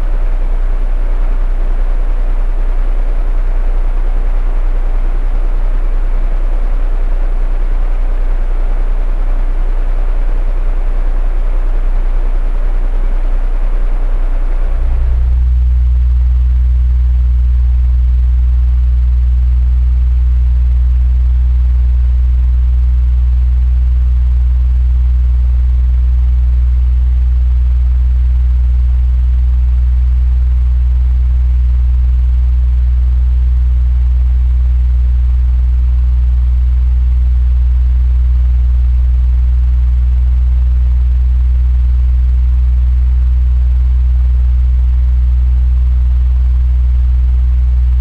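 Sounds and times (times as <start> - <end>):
electric fan humming: 0.0 - 30.4, 47.5 - 48.0.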